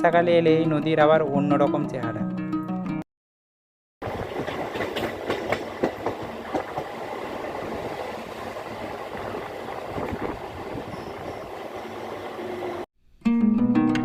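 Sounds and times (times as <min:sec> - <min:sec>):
train rumbling on rails: 0:04.0 - 0:12.9
train wheels clicking: 0:04.3 - 0:07.0.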